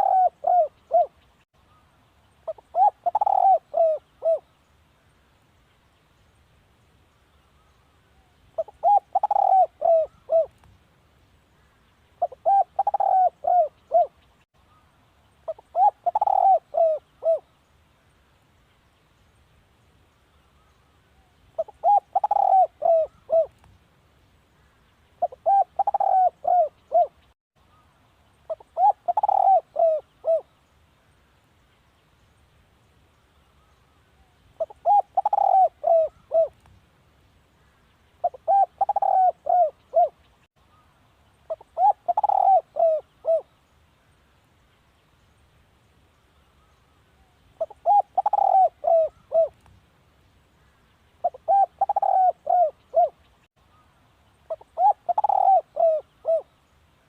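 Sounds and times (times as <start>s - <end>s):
dove cooing: 0.0s - 1.2s, 2.4s - 4.5s, 8.6s - 10.6s, 12.2s - 14.2s, 15.5s - 17.5s, 21.6s - 23.6s, 25.2s - 27.2s, 28.5s - 30.5s, 34.6s - 36.6s, 38.2s - 40.2s, 41.5s - 43.5s, 47.6s - 49.6s, 51.2s - 53.2s, 54.5s - 56.5s.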